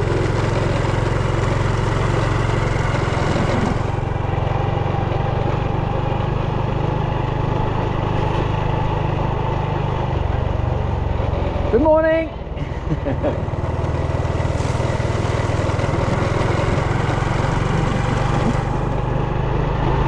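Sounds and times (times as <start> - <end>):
vehicle engine running: 0.0 - 20.0
rushing hiss: 13.8 - 18.7.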